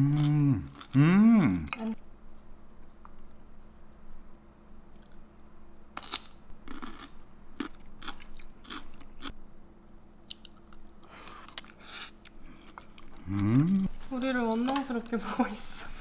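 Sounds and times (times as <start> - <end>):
person biting crunchy food: 6.0 - 9.3.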